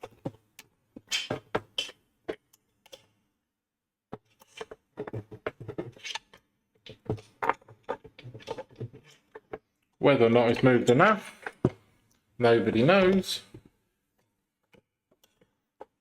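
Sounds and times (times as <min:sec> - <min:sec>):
plastic parts clicking and scraping: 0:00.0 - 0:03.2, 0:04.1 - 0:10.7, 0:14.2 - 0:16.0.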